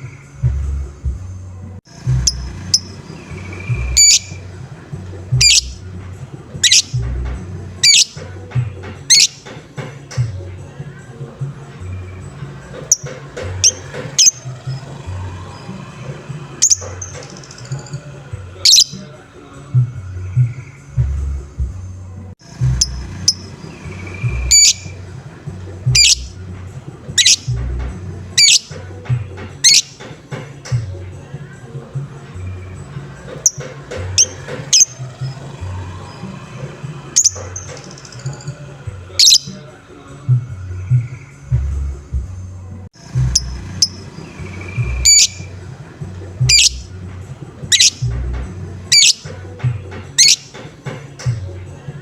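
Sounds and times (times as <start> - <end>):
background music with low beat: 0.0 - 52.0
lovebird harsh calls: 1.9 - 9.6, 11.8 - 19.2, 22.4 - 28.8, 29.5 - 30.1, 32.4 - 39.8, 43.0 - 47.0, 47.6 - 49.5, 50.1 - 50.7
bird short chirps: 2.3 - 4.4, 5.4 - 5.8, 6.6 - 7.0, 7.8 - 8.2, 9.1 - 9.4, 12.9 - 14.8, 16.6 - 18.0, 18.6 - 19.0, 22.8 - 25.0, 26.0 - 26.3, 27.2 - 27.5, 28.4 - 28.7, 29.6 - 30.0, 39.2 - 39.7, 43.4 - 45.5, 46.5 - 46.8, 47.7 - 48.1, 48.9 - 49.3, 50.2 - 50.5.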